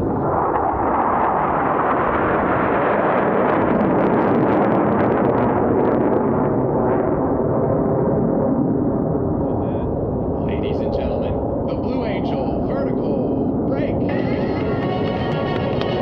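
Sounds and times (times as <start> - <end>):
loud jet noise: 9.5 - 16.0.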